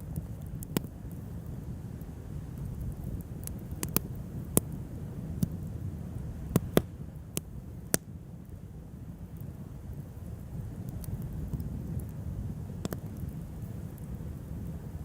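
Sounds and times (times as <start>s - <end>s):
sharp fire pops: 0.0s - 4.8s, 6.4s - 8.1s, 10.8s - 14.7s
campfire crackling: 0.0s - 15.0s
low steady rumble: 0.0s - 15.0s.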